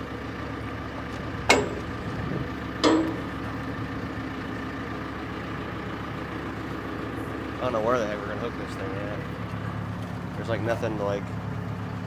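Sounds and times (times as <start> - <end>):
engine idling: 0.0 - 12.0
metal clanks with ring: 1.5 - 3.6.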